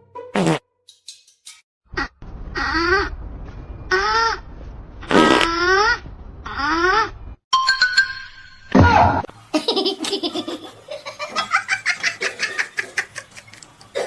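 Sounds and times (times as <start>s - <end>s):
laughter in rapid bursts: 9.5s - 13.5s.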